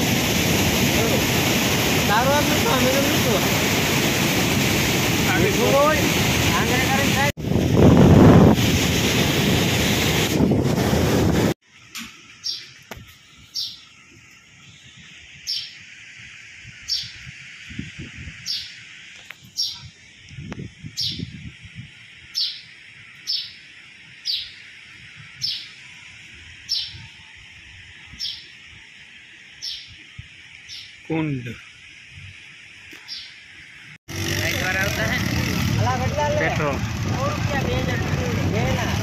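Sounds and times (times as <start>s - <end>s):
steady hiss: 11.6s - 39.0s
bird chirping: 12.4s - 14.0s, 14.6s - 15.8s, 16.8s - 17.2s, 18.4s - 18.8s, 19.5s - 19.9s, 20.9s - 21.4s, 22.3s - 24.6s, 25.4s - 27.2s, 28.1s - 28.5s, 29.6s - 30.0s, 30.6s - 31.0s, 32.9s - 33.4s.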